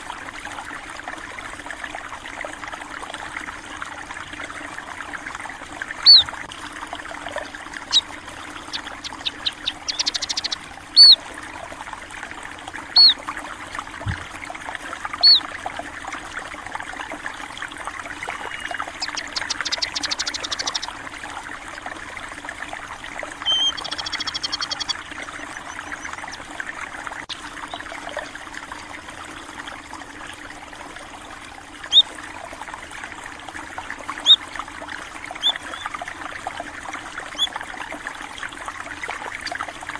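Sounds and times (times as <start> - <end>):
water trickling in a stream: 0.0 - 39.9
small birds chirping and trilling: 6.0 - 6.3, 7.8 - 11.2, 12.9 - 13.2, 15.2 - 15.5, 18.1 - 21.0, 23.4 - 26.4, 27.6 - 28.0, 31.9 - 32.1, 35.3 - 36.0, 37.3 - 37.6.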